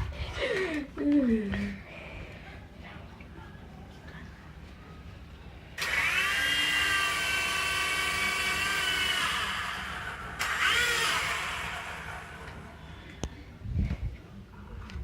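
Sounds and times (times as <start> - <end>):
small electric rotor motor whining: 5.8 - 12.9.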